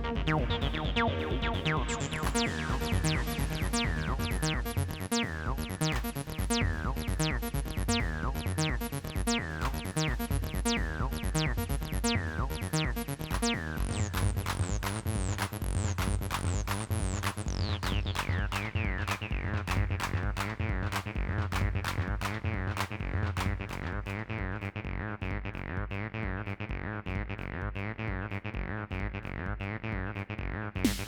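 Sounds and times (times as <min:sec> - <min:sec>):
drum machine beat: 0:00.0 - 0:23.9, 0:30.8 - 0:31.0
synth bass line with falling zaps: 0:00.0 - 0:31.0.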